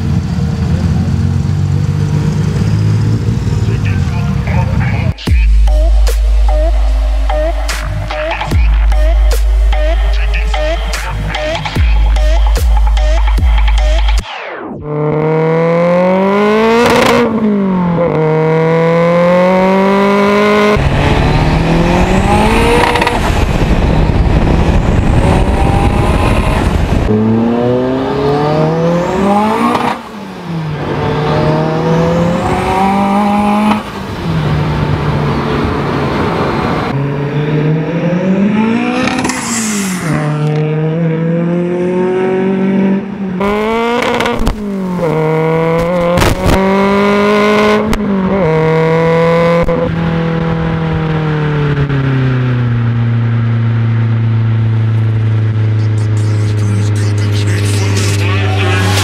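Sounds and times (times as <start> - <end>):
car engine revving hard: 14.8 - 52.3
loud rushing noise: 20.8 - 41.7, 55.6 - 59.0.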